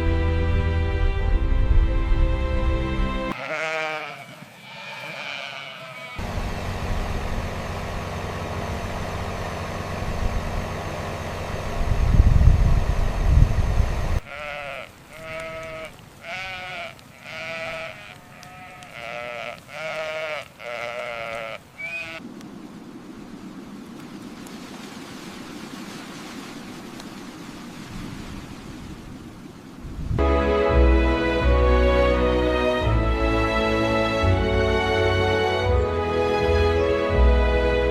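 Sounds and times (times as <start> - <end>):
sheep bleating: 3.3 - 6.2, 14.2 - 22.2
low steady hum: 6.2 - 14.2.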